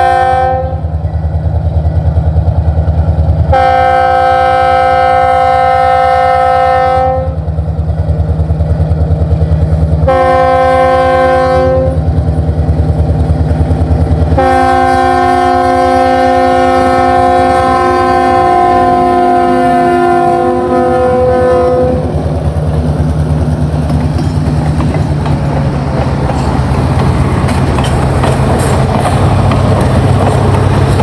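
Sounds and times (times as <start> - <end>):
locomotive air horn blasts: 0.0 - 0.9, 3.5 - 7.4, 10.0 - 12.1, 14.4 - 22.2
low rumble of train engine: 0.0 - 31.0.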